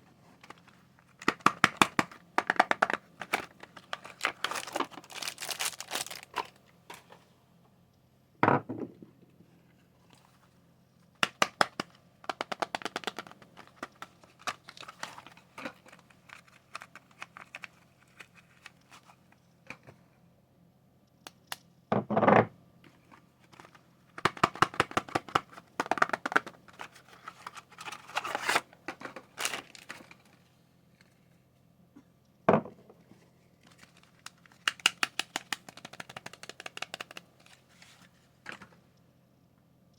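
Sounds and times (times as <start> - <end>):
soap wrapping crinkling: 0.4 - 6.6, 11.2 - 19.2, 33.6 - 38.2.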